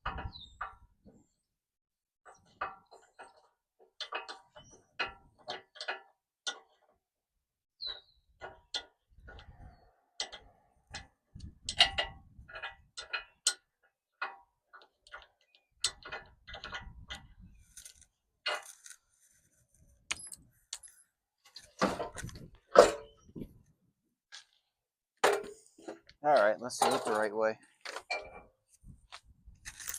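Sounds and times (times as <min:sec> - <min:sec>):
metal tools clinking: 0:29.7 - 0:29.9.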